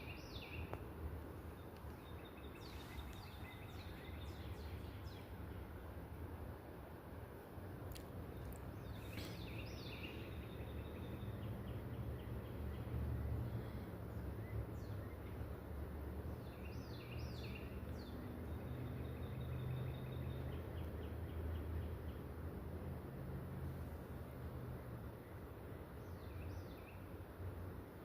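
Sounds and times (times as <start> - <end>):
small birds chirping: 0.0 - 5.9, 7.9 - 15.5, 16.2 - 22.2.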